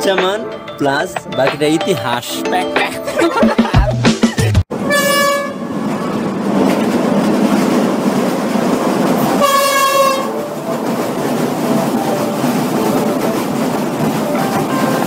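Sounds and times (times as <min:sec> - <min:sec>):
train rumbling across steel bridge: 0:04.7 - 0:15.0
locomotive horn blasts: 0:04.8 - 0:05.7, 0:09.4 - 0:10.4, 0:14.4 - 0:15.0.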